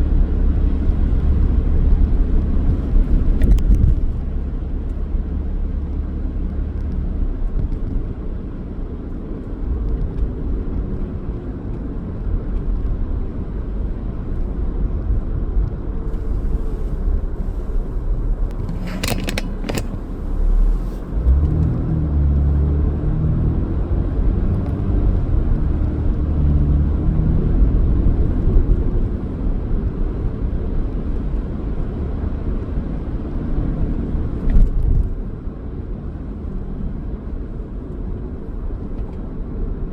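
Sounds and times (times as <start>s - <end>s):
car engine and road rumble: 0.0s - 39.9s
sharp clicks: 18.5s - 20.0s.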